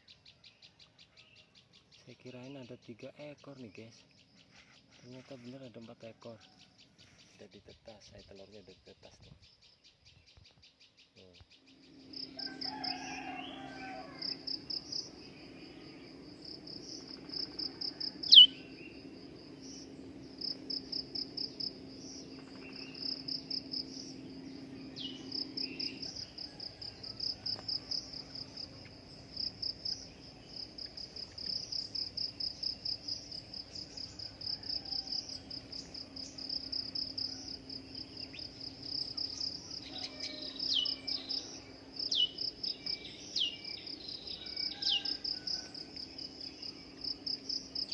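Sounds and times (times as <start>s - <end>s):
faint low hum: 1.1s - 47.9s
crickets chirping: 10.6s - 47.9s
sharp downward bird calls: 18.2s - 18.7s.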